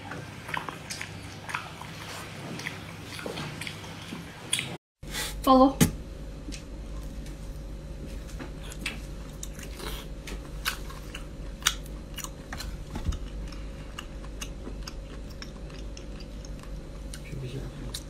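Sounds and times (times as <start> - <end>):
biting and chewing: 0.0 - 4.7, 8.5 - 18.0
faint steady hum: 0.0 - 18.0.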